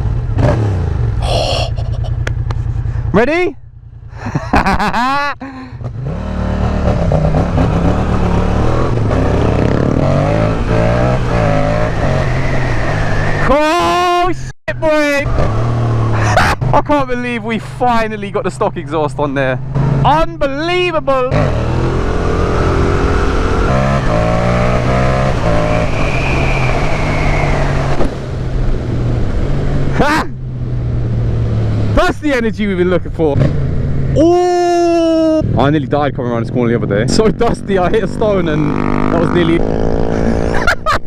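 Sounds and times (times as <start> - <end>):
motorcycle accelerating through gears: 0.0 - 1.3, 5.7 - 13.5, 15.3 - 16.8, 21.3 - 32.0, 36.5 - 40.6.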